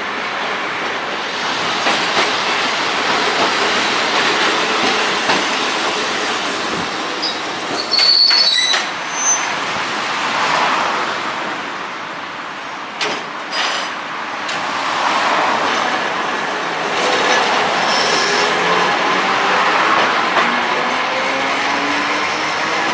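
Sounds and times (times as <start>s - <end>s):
streetcar rolling rumble: 0.0s - 22.9s
high wheel squeal: 7.2s - 9.7s, 17.7s - 19.2s.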